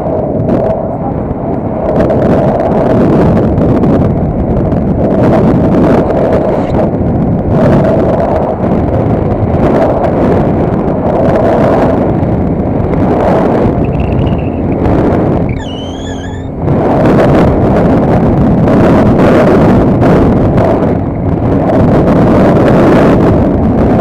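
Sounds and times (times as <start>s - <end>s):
wind buffeting microphone: 0.0s - 24.0s
high wavering whistle: 13.8s - 14.8s, 15.5s - 16.5s.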